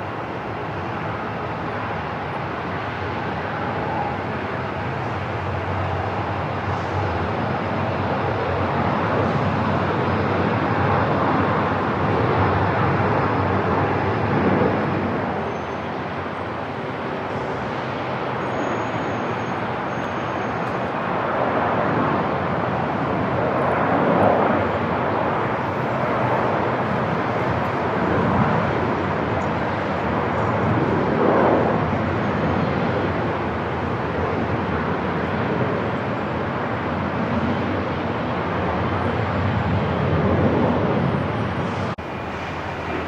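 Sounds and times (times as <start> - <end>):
airport ambient hum: 0.0 - 43.0.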